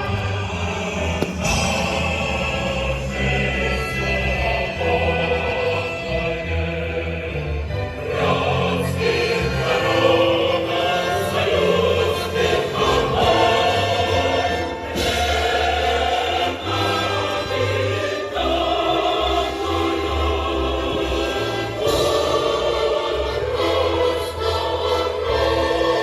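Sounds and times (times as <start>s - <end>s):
choir singing: 0.0s - 26.0s.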